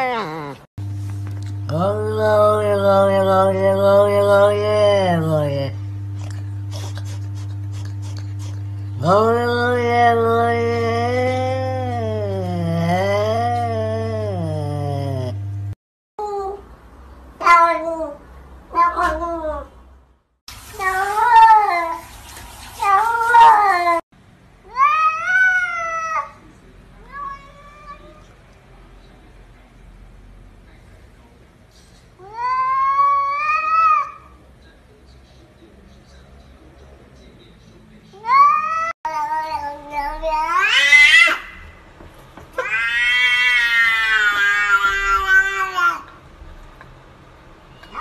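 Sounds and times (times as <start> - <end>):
cats meowing: 38.2 - 41.6, 42.6 - 46.1.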